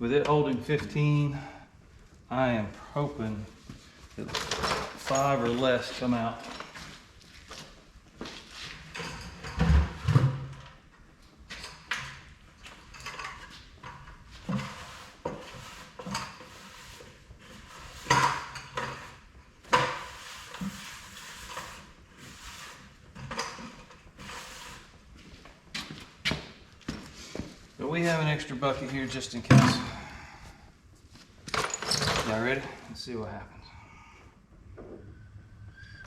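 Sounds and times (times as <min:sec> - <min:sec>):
hand tools clinking and clanking: 0:04.2 - 0:05.8, 0:11.6 - 0:14.6, 0:31.4 - 0:32.8.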